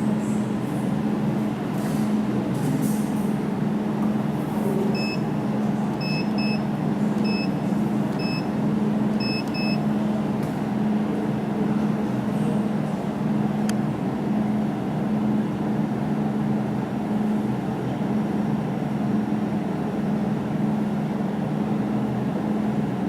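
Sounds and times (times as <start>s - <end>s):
short high beeps: 7.2s - 7.5s, 8.2s - 8.5s, 9.2s - 9.8s.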